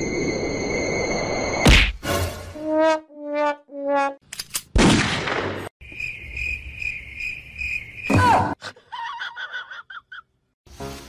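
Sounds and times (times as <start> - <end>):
cricket chirping: 5.8 - 8.4.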